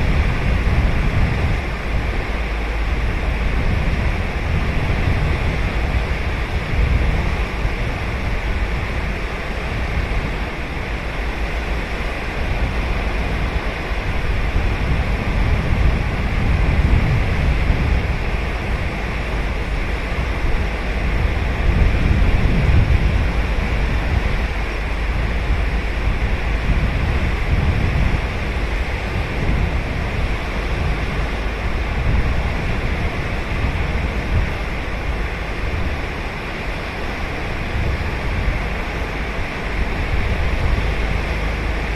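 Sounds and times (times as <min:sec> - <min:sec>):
surf washing on beach: 0:00.0 - 0:41.9.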